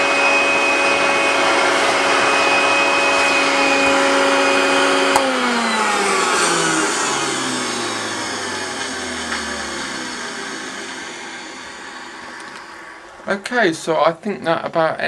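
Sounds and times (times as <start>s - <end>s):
motor winding down whine: 0.0s - 13.8s
vacuum cleaner running: 0.0s - 14.0s
vacuum switch click: 5.1s - 5.5s.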